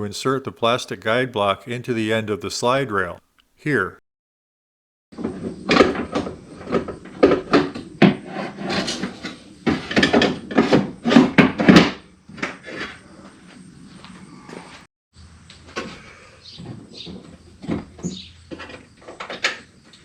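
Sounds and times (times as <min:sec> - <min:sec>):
plastic scraping on rail: 0:05.2 - 0:13.6.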